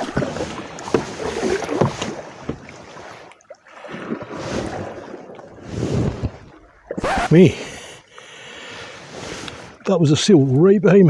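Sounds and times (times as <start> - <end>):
water splashing around canoe: 0.0 - 11.0.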